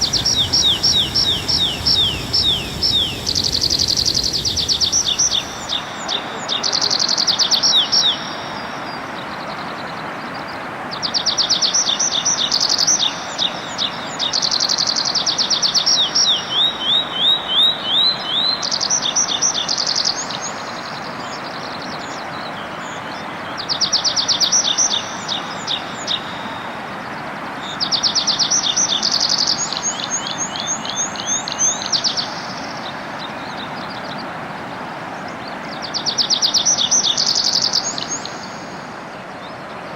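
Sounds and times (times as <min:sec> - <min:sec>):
songbird singing high notes: 0:00.0 - 0:09.2
steady background hiss: 0:00.0 - 0:39.9.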